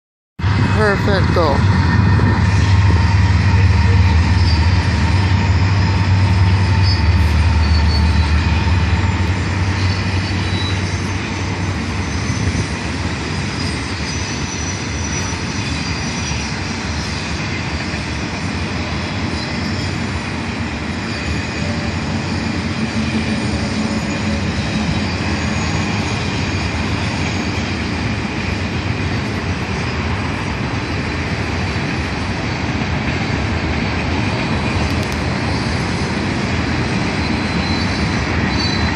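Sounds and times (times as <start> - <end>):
diesel locomotive engine rumble: 0.4 - 38.9
freight cars rolling on rails: 0.4 - 38.9
high wheel squeals: 2.6 - 18.4, 19.2 - 28.0, 35.4 - 38.9.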